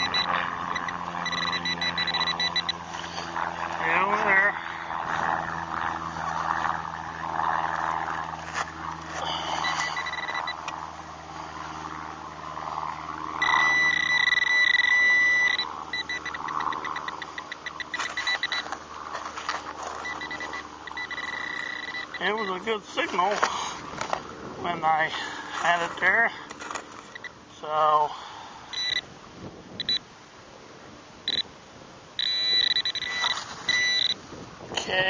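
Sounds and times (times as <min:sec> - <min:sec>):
metal detector beeping: 0:00.0 - 0:03.0, 0:09.2 - 0:10.7, 0:13.4 - 0:23.2, 0:28.7 - 0:29.1, 0:29.8 - 0:30.0, 0:31.3 - 0:31.5, 0:32.2 - 0:34.2.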